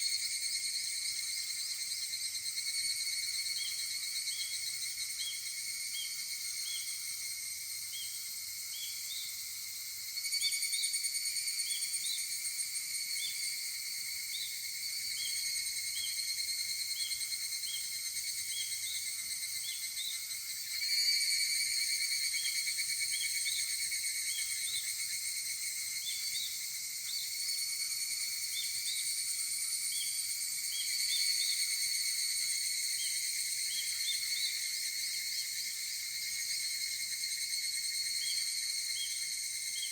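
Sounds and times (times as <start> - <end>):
cicadas chorus: 0.0 - 39.9
nearer cicada calling: 0.1 - 39.9.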